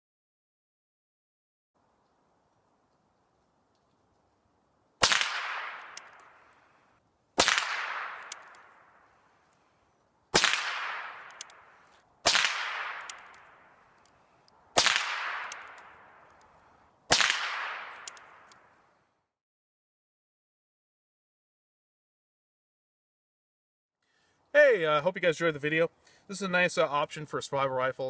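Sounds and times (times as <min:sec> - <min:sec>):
suppressed rifle shots: 0:05.0 - 0:06.4, 0:07.4 - 0:09.0, 0:10.3 - 0:13.7, 0:14.8 - 0:16.3, 0:17.1 - 0:18.7.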